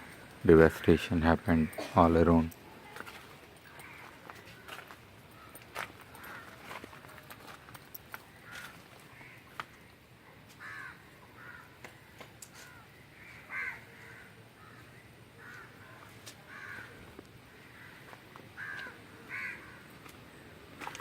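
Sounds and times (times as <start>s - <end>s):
birds calling: 10.6s - 21.0s.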